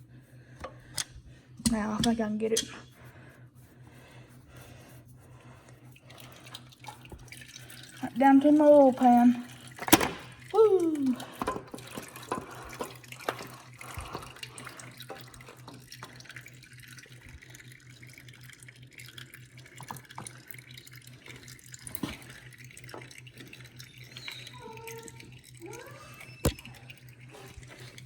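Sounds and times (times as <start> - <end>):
steady low hum: 0.0 - 28.0
oil dripping into pan: 9.5 - 25.8, 26.4 - 28.0.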